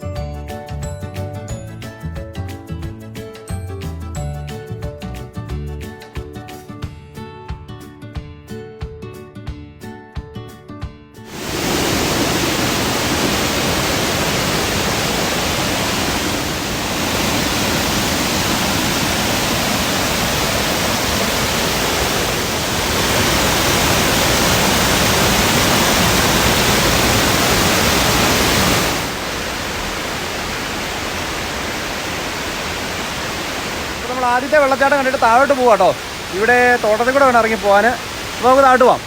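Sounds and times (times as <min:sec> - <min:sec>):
waterfall rushing: 0:11.3 - 0:39.0.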